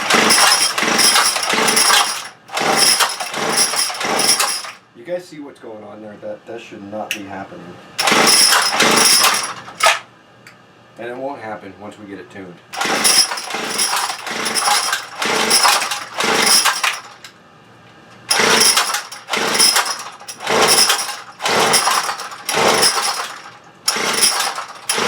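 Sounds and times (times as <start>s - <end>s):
two-stroke engine revving: 0.0s - 4.7s, 8.0s - 9.9s, 12.8s - 17.1s, 18.3s - 25.0s.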